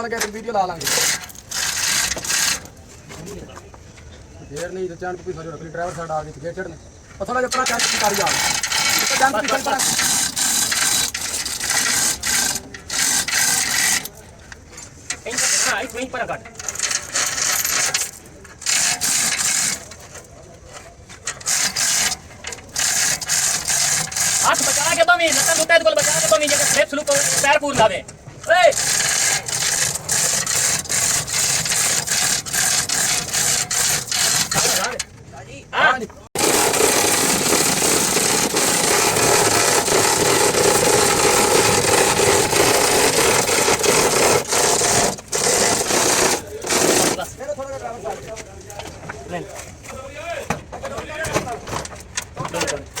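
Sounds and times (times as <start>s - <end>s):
hand tool rasping: 0.2s - 2.8s, 7.5s - 14.2s, 15.2s - 27.9s, 28.5s - 35.0s, 36.4s - 47.4s.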